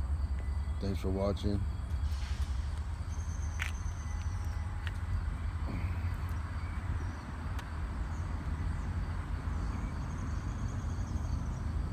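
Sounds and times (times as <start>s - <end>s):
faint high chirping: 0.3s - 1.1s.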